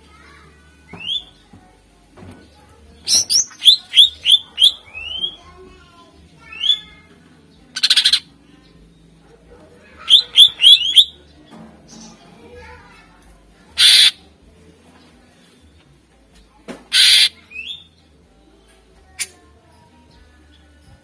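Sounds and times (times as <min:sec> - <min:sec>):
bird harsh rattling call: 0:07.8 - 0:08.2, 0:13.8 - 0:14.2, 0:16.9 - 0:17.3.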